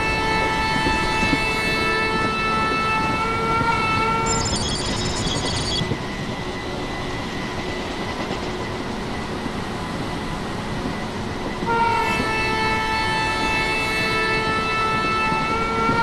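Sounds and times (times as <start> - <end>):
train wheels rumbling on track: 5.9 - 16.0
train horn chord: 11.7 - 16.0.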